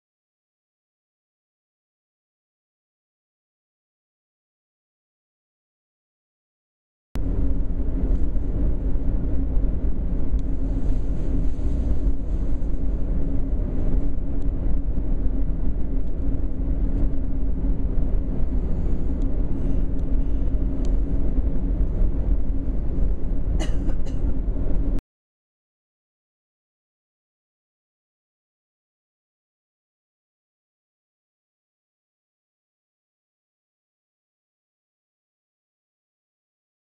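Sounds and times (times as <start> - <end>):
constant low hum: 7.2 - 25.0
train cabin rumble: 7.2 - 25.0.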